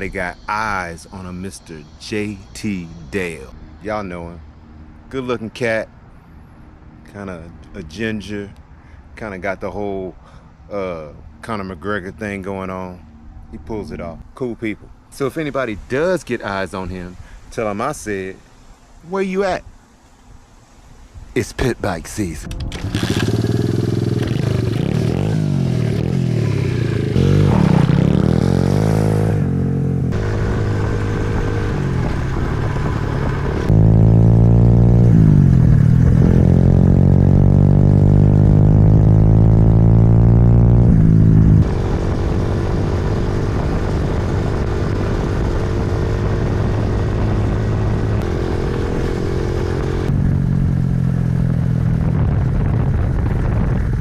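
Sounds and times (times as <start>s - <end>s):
pit bike engine revving: 22.6s - 52.8s.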